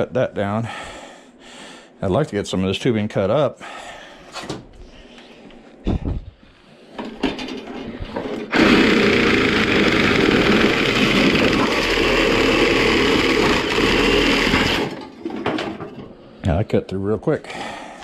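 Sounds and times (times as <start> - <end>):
power tool cutting copper tubing: 8.5 - 15.2.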